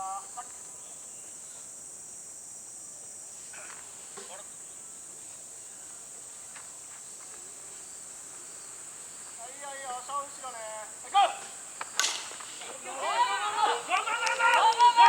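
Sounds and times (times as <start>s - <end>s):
insects chirring: 0.0s - 15.0s
distant voices calling out: 9.2s - 15.0s.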